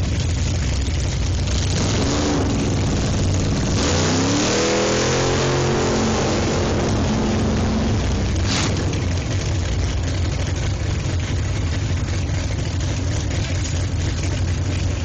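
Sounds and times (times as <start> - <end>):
car engine revving hard: 1.7 - 9.3.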